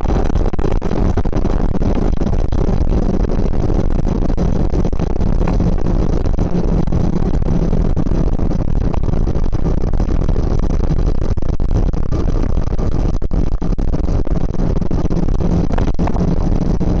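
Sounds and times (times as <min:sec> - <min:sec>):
motorcycle engine running: 0:15.1 - 0:17.0.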